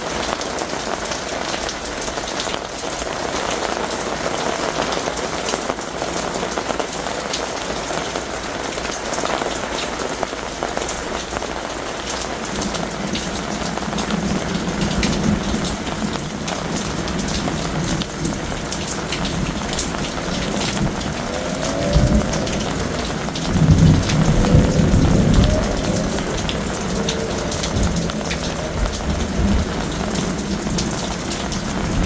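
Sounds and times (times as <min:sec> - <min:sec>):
heavy rain pouring: 0:00.0 - 0:32.0
low rumble: 0:19.1 - 0:32.0.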